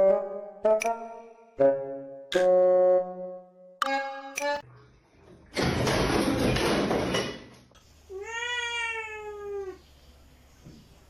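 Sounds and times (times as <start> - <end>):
cat meowing: 8.1 - 9.8.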